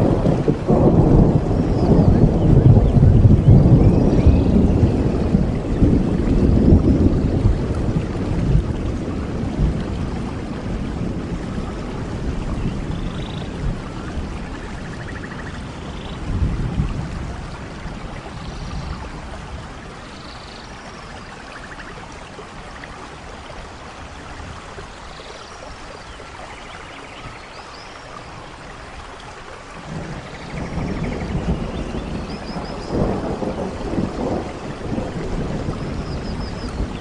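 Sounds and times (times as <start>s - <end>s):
thunder rumbling: 0.0s - 20.3s, 29.8s - 37.0s
steady rainfall: 0.0s - 37.0s.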